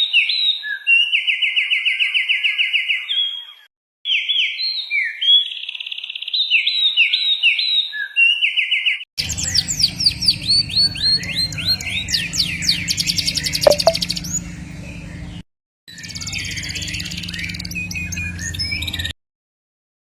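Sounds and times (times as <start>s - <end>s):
songbirds singing: 9.2s - 15.4s, 16.0s - 19.1s.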